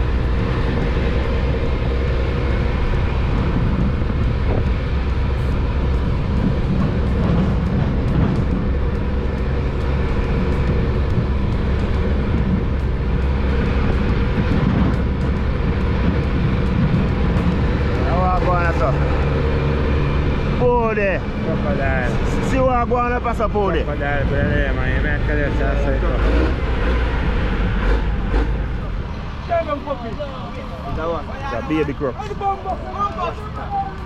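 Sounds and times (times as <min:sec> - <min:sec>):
road noise: 0:00.0 - 0:34.0
vehicle engine drone: 0:00.0 - 0:34.0.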